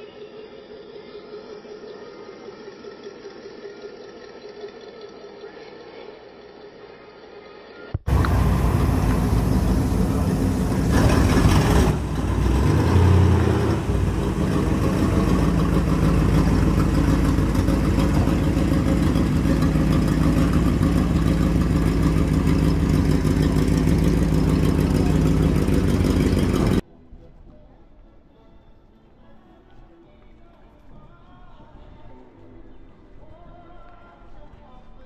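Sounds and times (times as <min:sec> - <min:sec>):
car engine idling and revving: 0:08.1 - 0:26.8.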